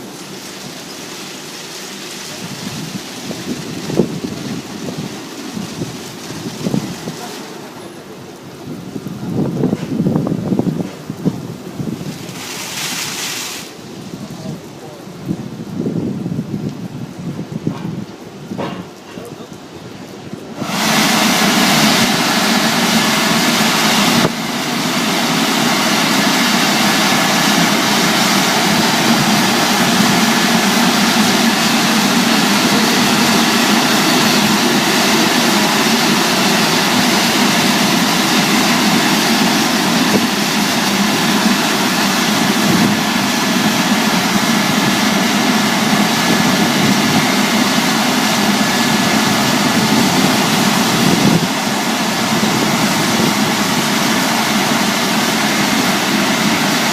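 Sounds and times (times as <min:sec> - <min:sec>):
car wash machine whirring: 0:00.0 - 0:14.0, 0:20.4 - 0:56.9.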